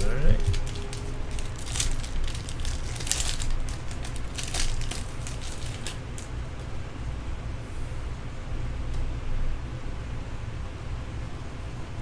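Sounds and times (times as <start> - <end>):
card wrapper crinkling: 0.0 - 6.3
steady low hum: 0.0 - 12.0.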